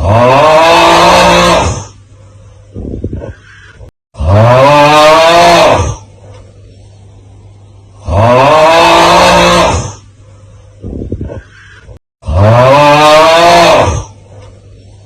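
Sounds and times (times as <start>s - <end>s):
low steady hum: 1.6s - 3.9s, 5.6s - 8.4s, 9.3s - 12.0s, 14.0s - 15.0s.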